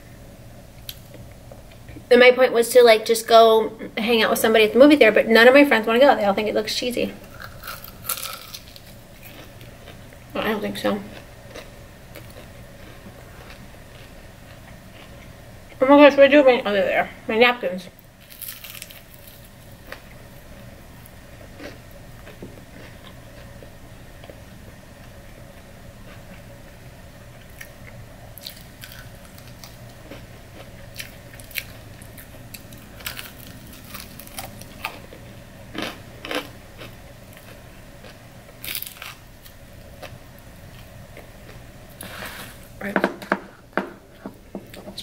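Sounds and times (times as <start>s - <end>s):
faint steady hum: 0.0s - 45.0s
crunchy chewing and biting: 7.3s - 10.2s, 11.1s - 15.3s, 18.2s - 20.2s, 21.4s - 24.4s, 27.4s - 42.4s.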